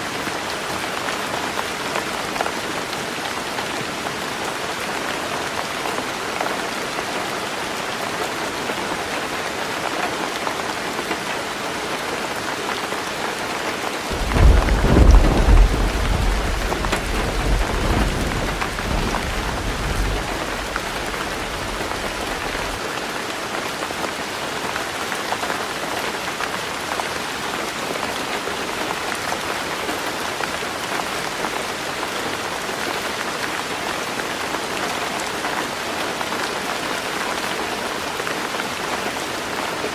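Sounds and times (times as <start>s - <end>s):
heavy rain on a roof: 0.0s - 39.9s
thunder rumbling: 14.1s - 22.8s.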